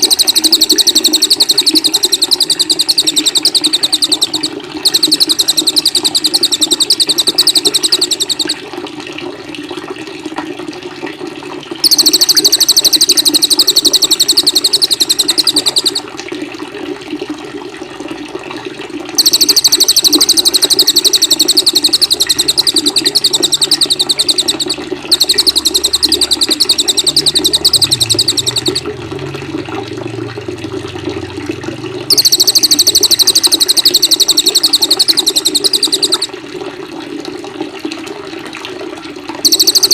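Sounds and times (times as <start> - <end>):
songbird trilling: 0.0 - 8.6, 11.8 - 16.0, 19.2 - 29.3, 32.1 - 36.3, 39.4 - 39.9
running water: 0.0 - 10.5, 11.3 - 39.9.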